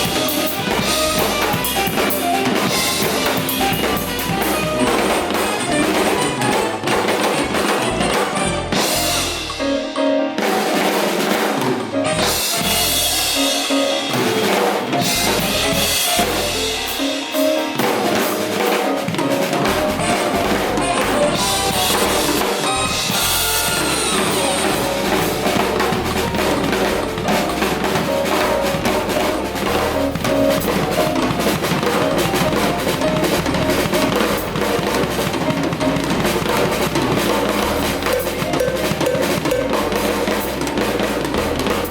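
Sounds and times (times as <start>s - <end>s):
snare drum: 0.0s - 9.8s, 10.4s - 41.9s
cymbals: 0.0s - 41.9s
sustained pitched instruments: 19.1s - 41.3s.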